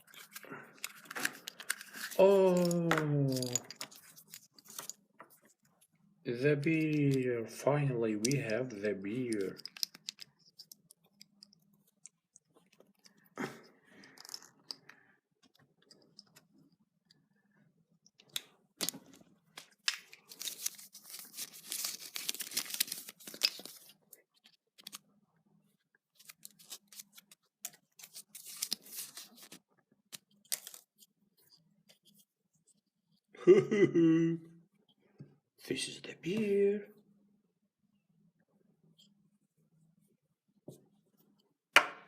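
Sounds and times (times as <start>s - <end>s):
packaging crinkling and tearing: 20.2s - 23.9s.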